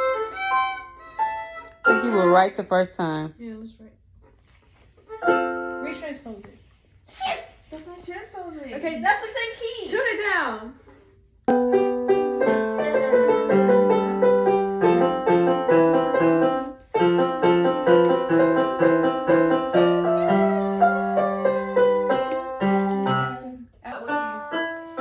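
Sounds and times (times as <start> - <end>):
digital keyboard piano melody: 0.0 - 2.5, 5.1 - 6.0, 11.5 - 25.0.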